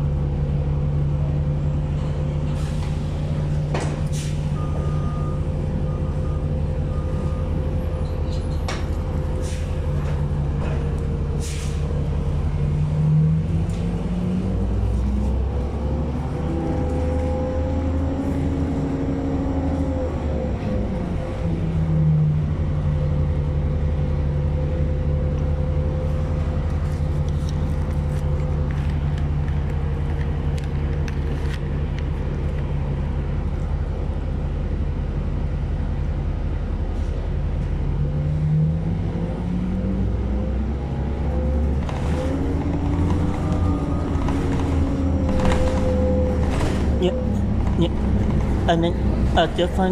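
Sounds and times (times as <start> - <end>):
bus engine humming: 0.0 - 49.9.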